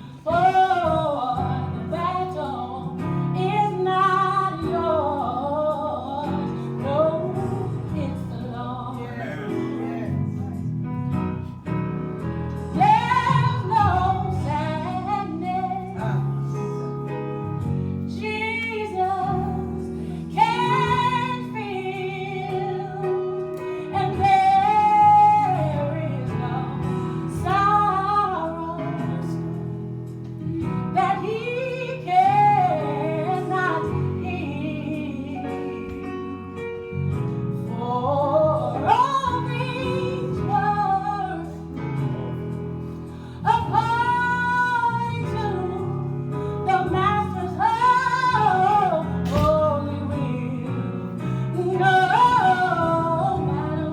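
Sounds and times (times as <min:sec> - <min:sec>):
woman singing gospel song: 0:00.0 - 0:09.8, 0:12.5 - 0:53.9.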